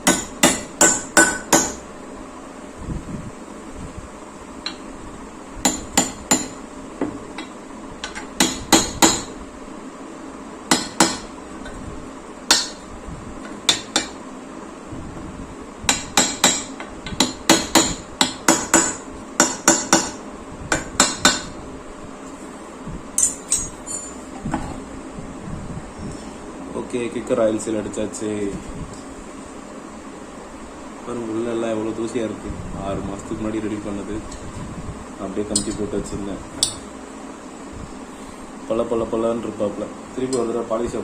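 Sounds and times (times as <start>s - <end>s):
hammer tapping metal: 0.0s - 1.8s, 5.7s - 9.3s, 10.7s - 11.8s, 12.5s - 12.8s, 13.4s - 14.2s, 15.9s - 21.6s, 23.2s - 24.2s, 36.6s - 36.9s.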